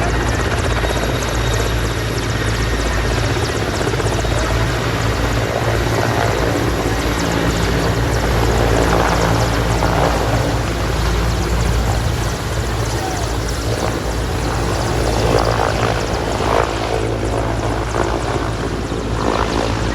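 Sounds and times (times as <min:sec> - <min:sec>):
helicopter taking off: 0:00.0 - 0:19.9.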